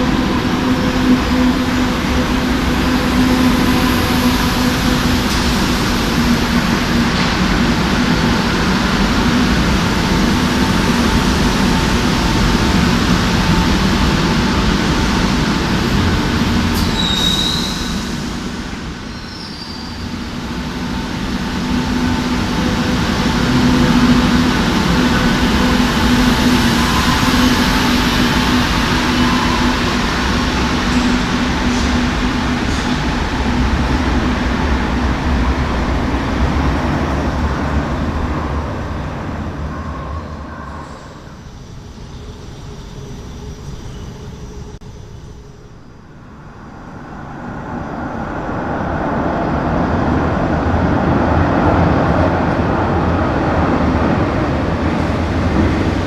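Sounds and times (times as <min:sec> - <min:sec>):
metro train running through station: 0:00.0 - 0:56.0
high wheel squeal: 0:16.6 - 0:33.1.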